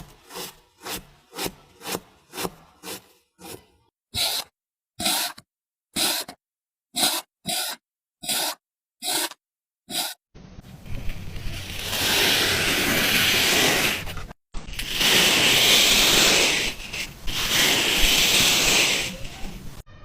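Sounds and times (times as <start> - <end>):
sand grainy hiss: 14.8 - 19.6.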